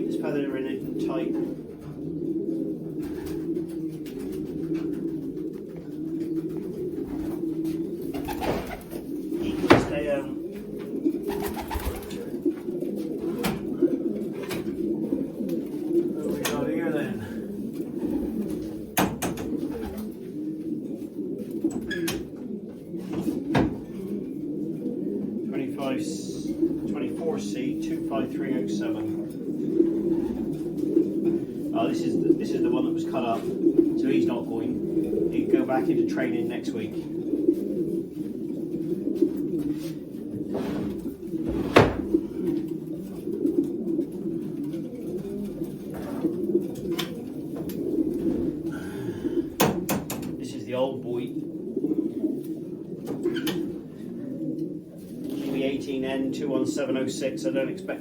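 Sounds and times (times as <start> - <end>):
pigeons cooing: 0.0 - 58.0
sharp knocks: 19.0 - 19.5.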